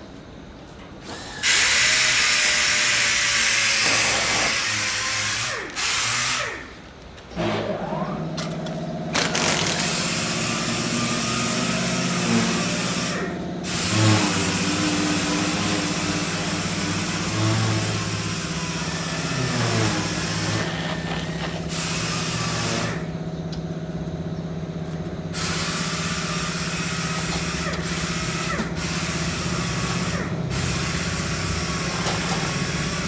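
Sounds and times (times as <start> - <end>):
power tool hissing: 1.1 - 6.7, 7.4 - 23.9, 25.2 - 33.0
steady pitched machine hum: 7.4 - 33.0.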